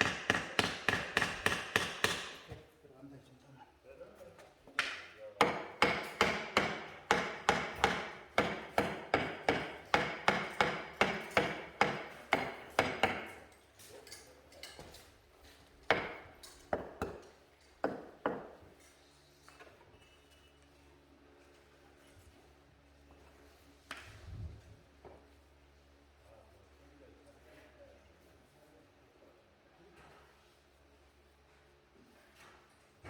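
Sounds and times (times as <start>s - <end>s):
hammer strikes: 0.0s - 2.6s, 4.8s - 13.5s, 15.9s - 18.6s.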